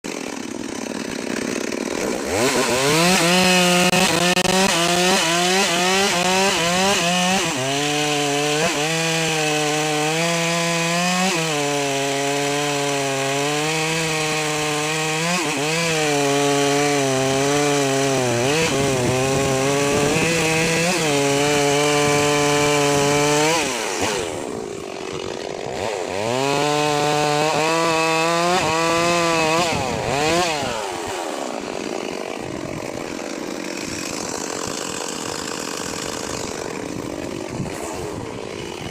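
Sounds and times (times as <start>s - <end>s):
chainsaw cutting wood: 0.0s - 38.9s
chainsaw idling: 0.1s - 38.9s.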